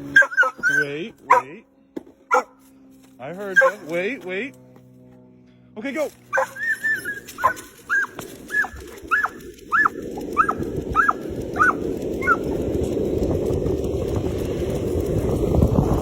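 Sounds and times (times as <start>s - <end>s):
dog yipping: 0.1s - 1.5s, 2.3s - 2.6s, 3.5s - 3.9s, 6.3s - 12.5s
wind on microphone: 7.2s - 16.0s.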